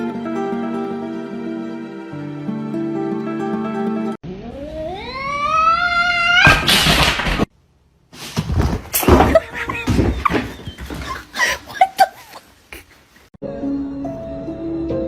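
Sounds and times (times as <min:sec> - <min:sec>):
cat yowling: 0:04.4 - 0:06.6
knocks and rustling: 0:08.2 - 0:11.4.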